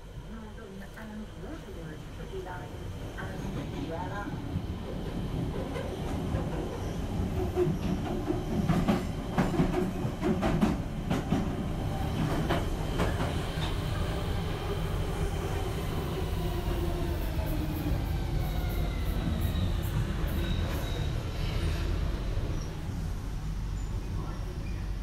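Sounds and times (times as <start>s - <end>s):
train rumbling on rails: 0.0s - 25.0s
faint high wheel squeal: 19.4s - 21.9s.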